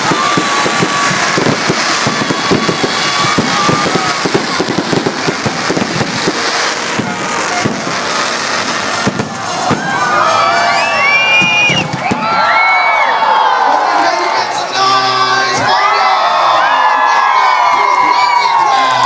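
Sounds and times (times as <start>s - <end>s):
fireworks bangs and crackles: 0.0s - 13.0s
crowd cheering and whooping: 0.0s - 19.0s.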